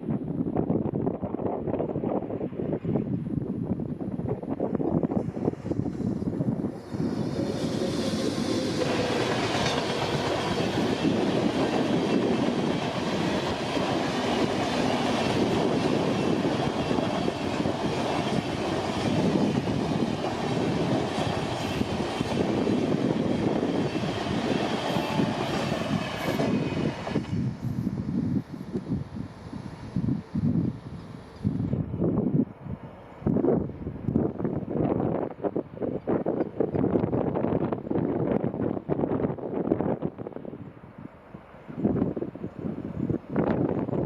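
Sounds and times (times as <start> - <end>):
train wheels clattering over rails: 6.8 - 27.3.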